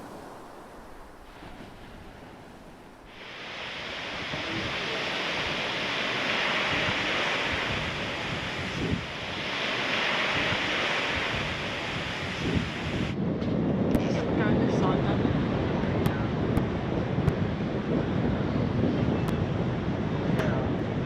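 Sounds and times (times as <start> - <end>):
sea waves washing: 0.0 - 13.2
wind buffeting microphone: 0.0 - 21.0.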